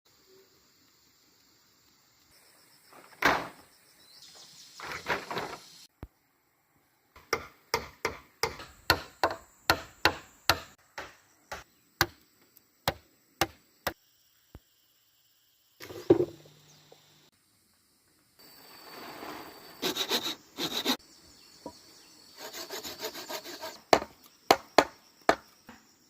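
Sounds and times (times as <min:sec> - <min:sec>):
chopping strikes on wood: 0:07.2 - 0:12.2, 0:12.9 - 0:13.6, 0:23.9 - 0:25.5
knock: 0:15.9 - 0:16.4
rough scraping: 0:18.4 - 0:21.0.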